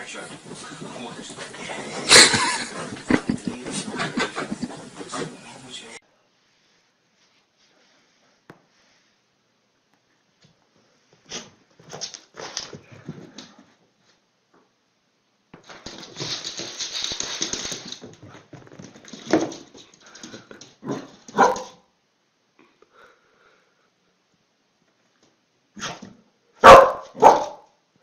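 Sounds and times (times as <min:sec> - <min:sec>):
small dogs barking: 0:20.8 - 0:21.8, 0:26.6 - 0:27.7.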